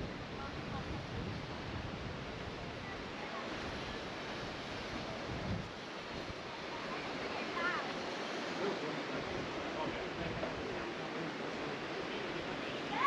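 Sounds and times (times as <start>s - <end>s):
wind buffeting microphone: 0.0s - 6.6s
water rushing: 0.0s - 13.0s.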